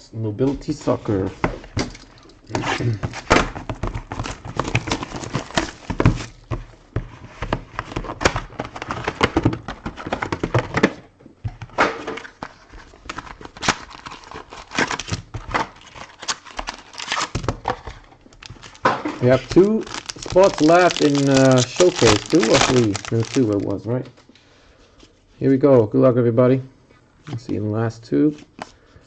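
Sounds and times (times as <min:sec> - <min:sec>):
plastic wrapping crinkling and tearing: 0:02.0 - 0:06.5, 0:12.4 - 0:23.8.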